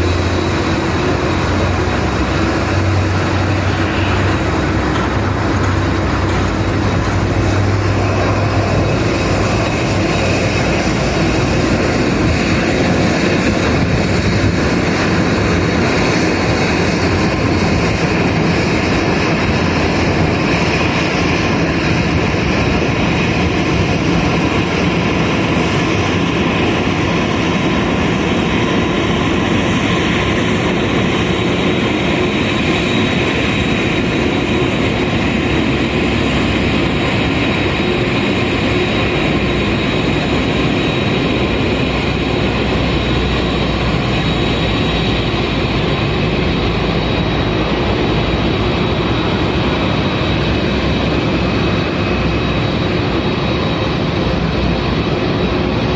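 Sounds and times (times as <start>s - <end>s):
jet engines idling: 0.0s - 55.9s.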